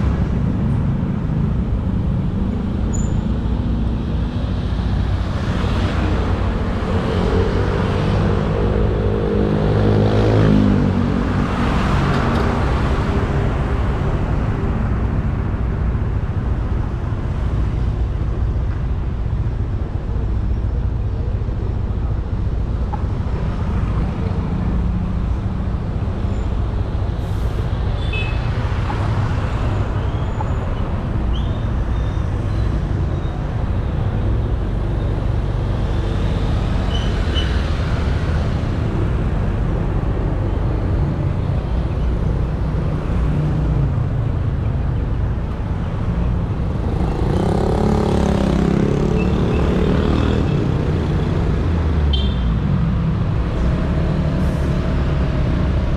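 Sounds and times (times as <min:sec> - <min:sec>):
passing traffic engine: 0:00.0 - 0:55.9
road and wind noise: 0:00.0 - 0:55.9.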